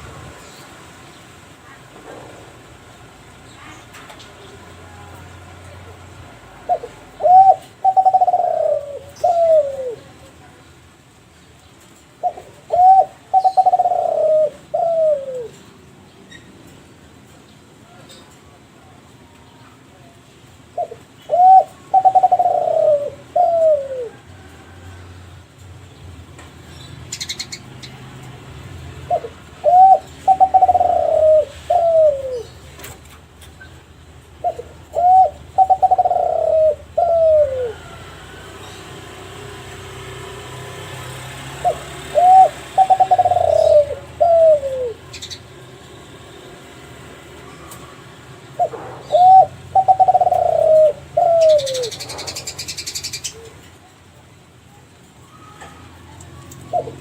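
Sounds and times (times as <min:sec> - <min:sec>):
dove cooing: 0:06.5 - 0:10.4, 0:12.2 - 0:15.8, 0:20.8 - 0:25.1, 0:29.0 - 0:38.8, 0:41.1 - 0:45.5, 0:48.5 - 0:53.9, 0:55.3 - 0:57.0.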